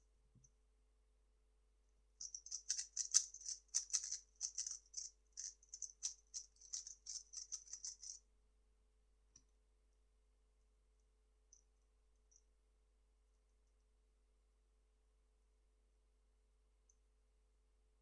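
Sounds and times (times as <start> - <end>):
speed cube plastic clicking: 2.2 - 8.2.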